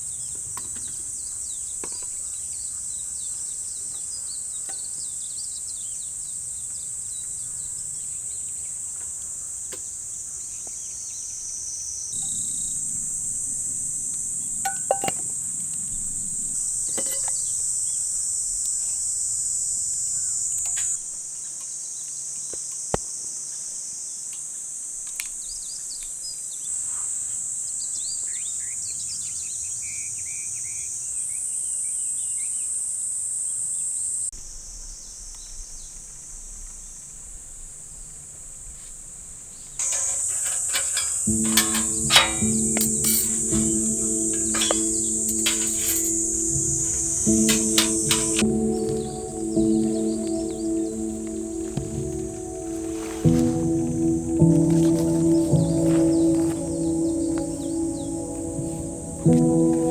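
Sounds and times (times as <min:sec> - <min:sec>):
high-pitched insect chorus: 0:04.7 - 0:21.0, 0:39.6 - 0:59.9
bird chirps: 0:41.3 - 0:59.9.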